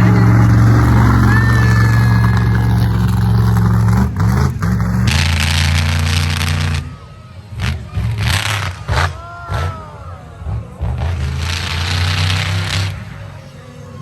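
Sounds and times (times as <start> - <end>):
monster truck engine running: 0.0 - 14.0.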